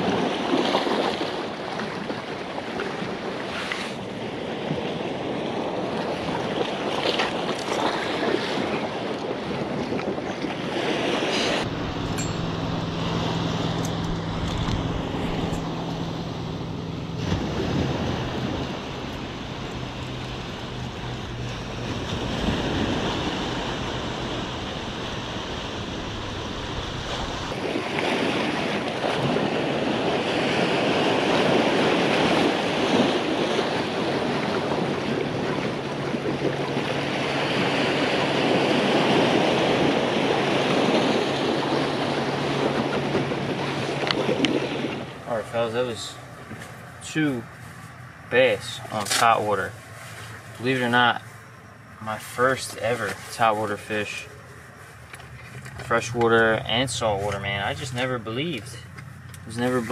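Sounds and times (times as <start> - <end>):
wind rumbling on microphone: 0.0 - 48.9
surf breaking over rocks: 10.6 - 47.4.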